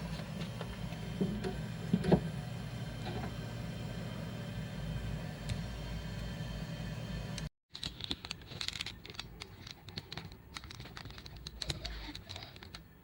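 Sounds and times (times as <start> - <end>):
steady low hum: 0.0 - 7.5
hands handling small parts: 7.7 - 13.0.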